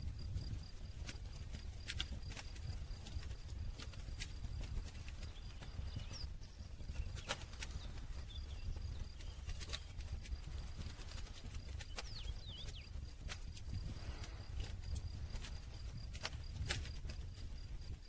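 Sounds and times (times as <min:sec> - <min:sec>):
campfire crackling and popping: 0:00.0 - 0:18.0
bird chirps: 0:04.9 - 0:10.1, 0:11.7 - 0:13.1.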